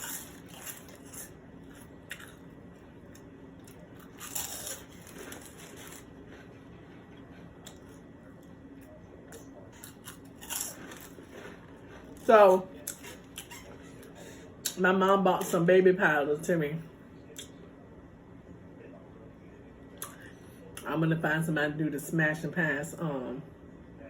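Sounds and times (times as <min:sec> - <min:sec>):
crunchy snack eating: 0:00.0 - 0:08.4, 0:09.3 - 0:14.8.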